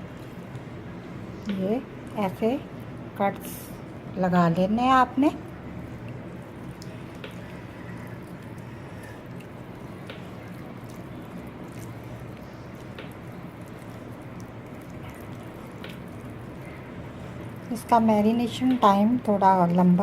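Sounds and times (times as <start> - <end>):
steady low hum: 0.0 - 20.0
wet squishing of raw chicken: 5.4 - 17.8.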